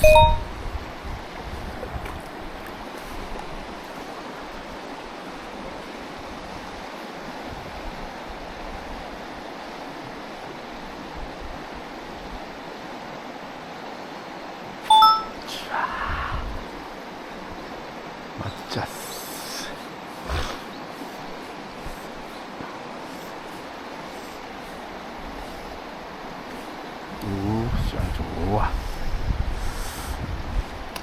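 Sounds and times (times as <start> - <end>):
stream water rushing: 0.0 - 16.0, 16.6 - 31.0.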